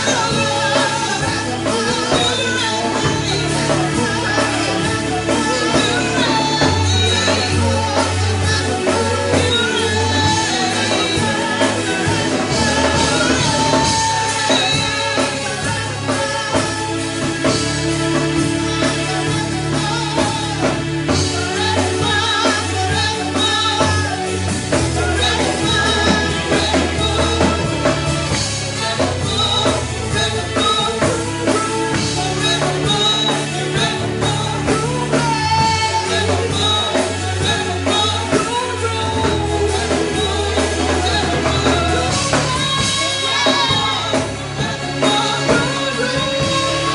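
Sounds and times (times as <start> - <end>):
person singing: 0.0 - 46.9
worship band music: 0.0 - 46.9.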